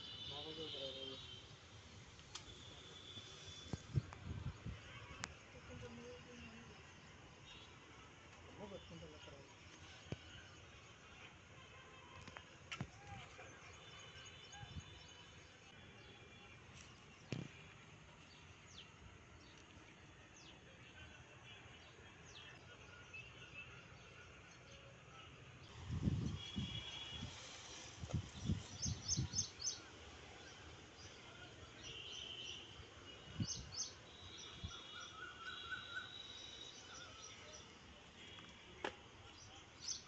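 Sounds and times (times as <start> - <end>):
small birds chirping: 28.1 - 31.2.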